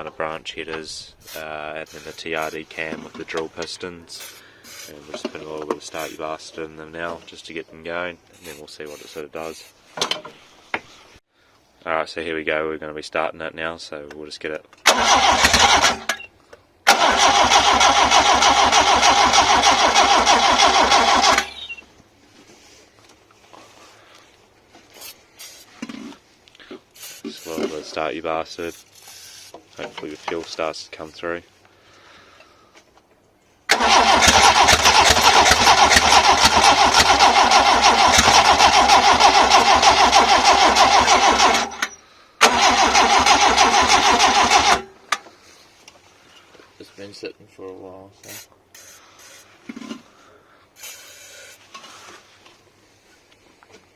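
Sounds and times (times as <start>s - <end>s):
starter motor cranking engine: 1.1s - 3.4s, 4.0s - 6.2s, 14.8s - 16.2s, 16.9s - 21.8s, 33.7s - 45.0s.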